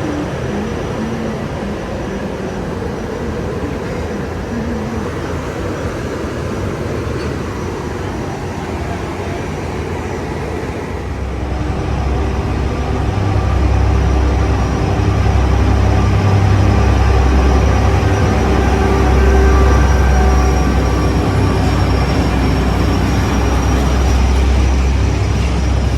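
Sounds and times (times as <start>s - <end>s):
train rumble: 0.0s - 25.9s
low engine drone with tones: 10.7s - 25.9s.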